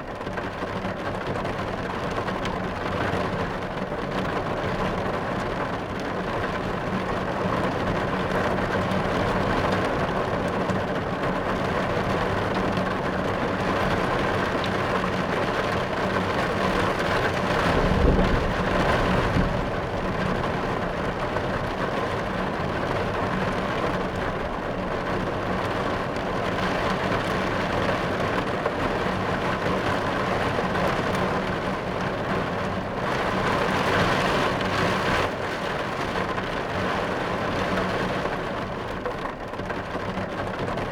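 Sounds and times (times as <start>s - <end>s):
rain falling on a car: 0.0s - 40.9s
thunder rumble: 16.5s - 25.5s.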